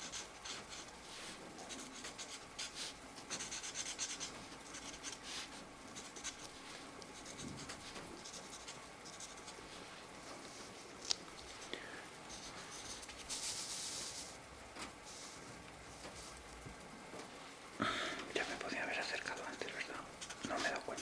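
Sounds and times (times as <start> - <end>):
markers scratching on paper: 0.0 - 9.7, 12.3 - 14.4, 18.4 - 21.0
soft steady hiss: 0.0 - 21.0.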